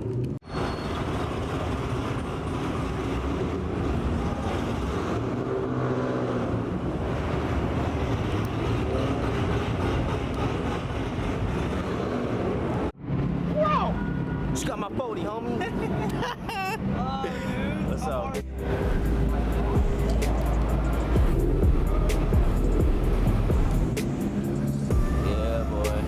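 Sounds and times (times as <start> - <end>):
road noise: 0.0 - 26.0
car engine rumble: 15.5 - 26.0.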